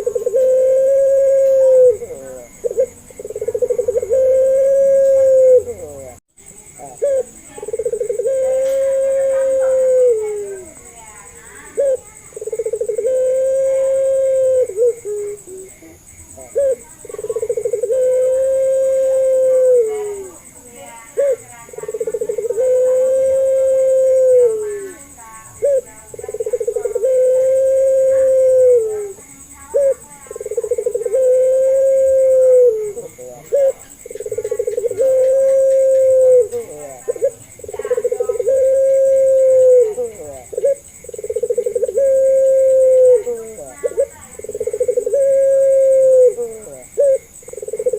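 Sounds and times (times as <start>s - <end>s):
dove cooing: 0.0s - 47.9s.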